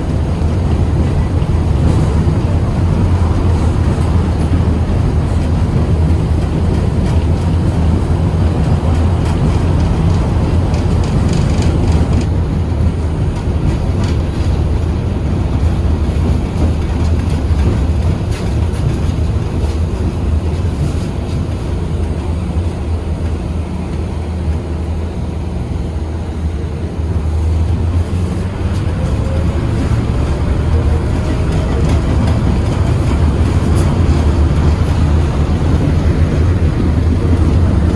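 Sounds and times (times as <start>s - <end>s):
tram motors and wheels rumbling: 0.0s - 37.9s.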